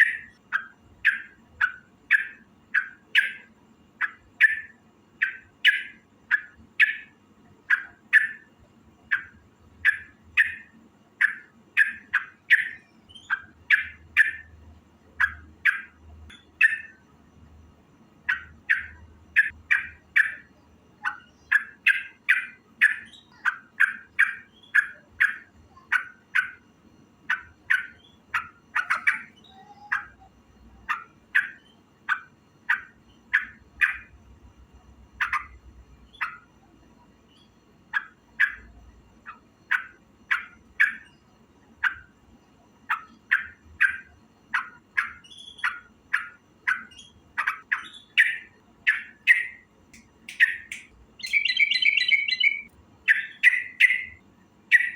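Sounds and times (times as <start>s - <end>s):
bird calling in harsh notes: 27.3s - 34.2s, 50.3s - 54.9s.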